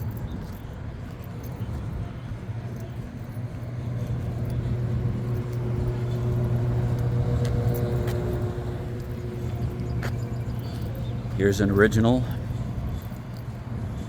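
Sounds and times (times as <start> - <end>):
low machine hum: 0.0 - 14.0
higher steady tones: 3.7 - 12.8.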